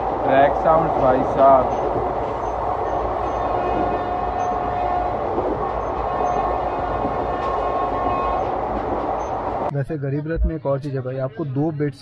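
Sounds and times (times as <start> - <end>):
train wheels rumbling on track: 0.0 - 9.7.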